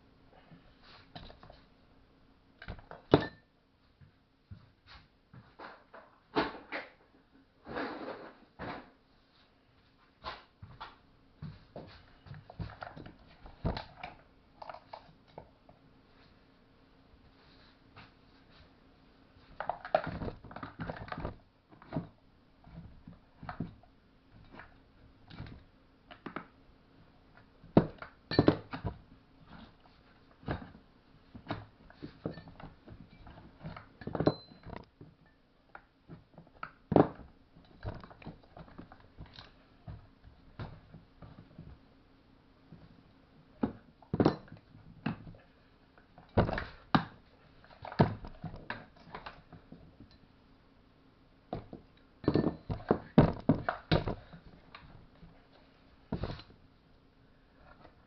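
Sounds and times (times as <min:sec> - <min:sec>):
metal tools knocking and clinking: 0:34.0 - 0:35.4, 0:52.2 - 0:53.0.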